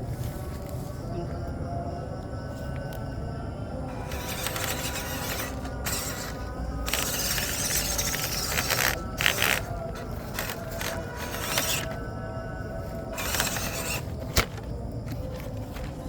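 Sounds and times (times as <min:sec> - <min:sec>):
small electric motor whirring: 0:03.9 - 0:12.1, 0:12.8 - 0:15.9.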